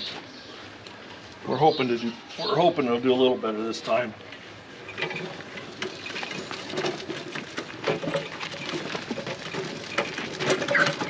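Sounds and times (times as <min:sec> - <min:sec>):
farm equipment clattering: 0:04.8 - 0:11.0.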